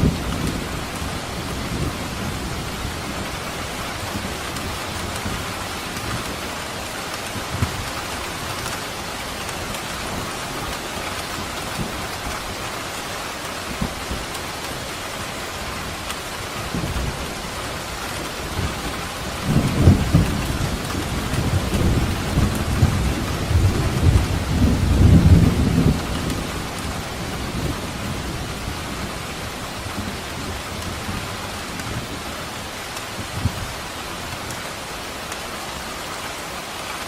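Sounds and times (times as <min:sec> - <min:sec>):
steady rain falling: 0:00.0 - 0:37.0
thunder rumbling: 0:13.4 - 0:33.8.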